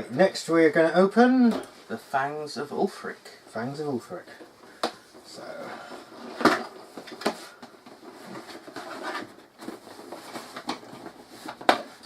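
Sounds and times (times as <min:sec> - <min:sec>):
cardboard packaging rustling: 0:04.0 - 0:12.0.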